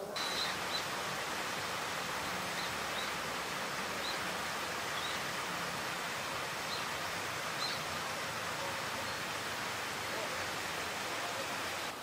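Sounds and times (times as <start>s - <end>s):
outdoor background hiss: 0.0s - 12.0s
bird calling with thin high notes: 0.2s - 0.9s.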